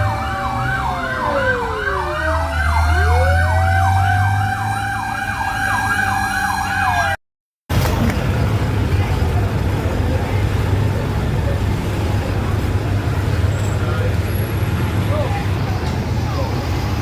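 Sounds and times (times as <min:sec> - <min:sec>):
fast yelping siren: 0:00.0 - 0:07.2
siren tone sliding down and up: 0:00.0 - 0:07.2
traffic noise: 0:00.0 - 0:17.0
truck engine rumble: 0:00.0 - 0:17.0.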